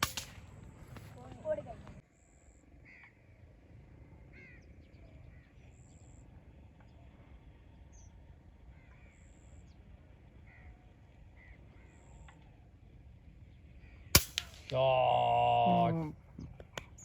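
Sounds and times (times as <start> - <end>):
low background hum: 0.0 - 17.0
bird calls: 0.4 - 3.4, 4.2 - 12.7.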